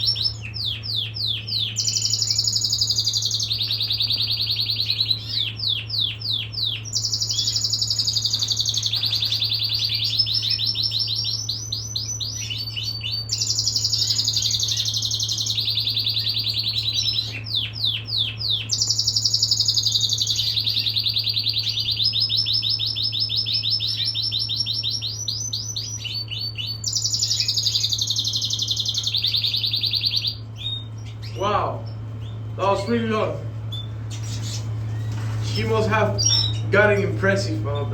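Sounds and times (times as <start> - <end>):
canary singing trills: 0.0 - 37.9
low hum: 28.2 - 37.9.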